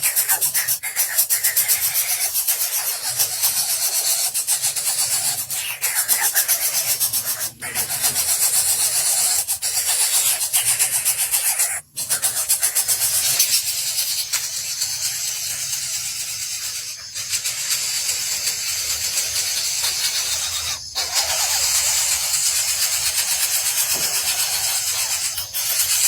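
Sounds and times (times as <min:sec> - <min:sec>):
fast rasping rhythm: 0:00.0 - 0:26.0.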